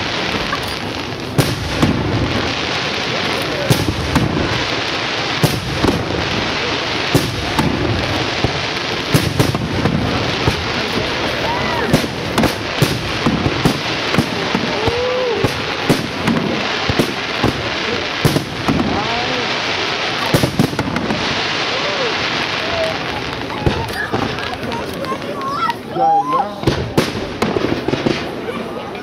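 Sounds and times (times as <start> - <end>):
firework bangs: 0.0 - 29.0
firework crackle: 0.0 - 29.0.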